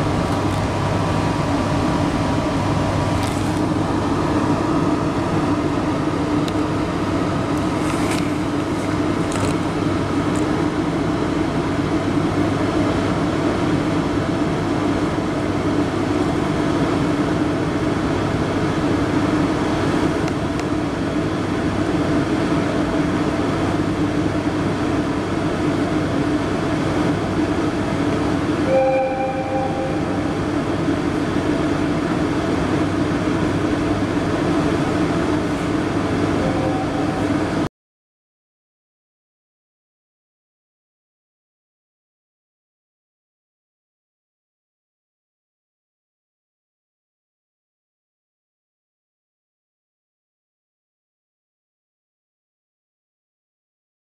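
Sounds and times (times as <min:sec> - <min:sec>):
train machinery hum and rumble: 0:00.0 - 0:37.7
brief electronic tone: 0:28.7 - 0:30.4, 0:36.4 - 0:37.4.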